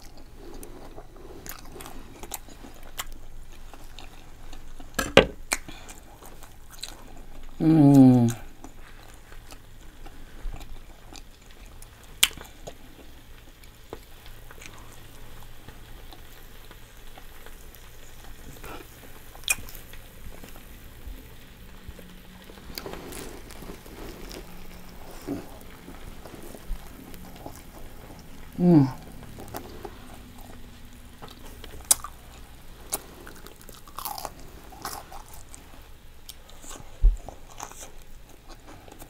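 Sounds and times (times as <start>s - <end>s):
chewing and wet mouth sounds: 0.0s - 39.0s.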